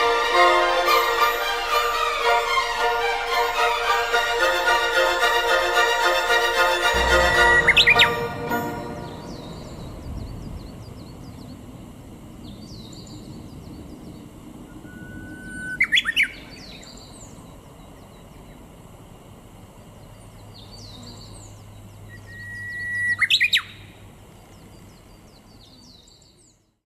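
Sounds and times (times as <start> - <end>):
bush warbler whistled song: 12.4 - 18.6, 20.2 - 23.9
small birds chirping: 19.9 - 26.8.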